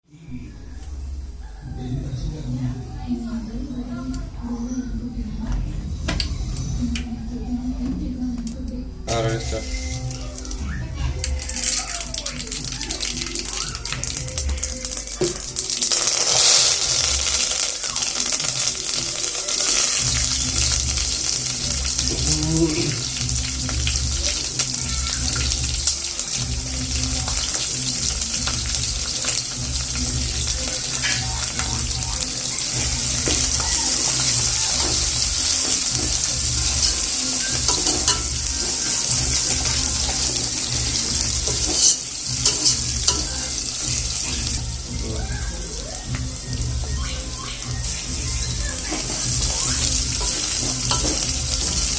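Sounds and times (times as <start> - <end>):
food sizzling in hot oil: 9.1 - 51.9
low pulsing beat: 20.0 - 51.9.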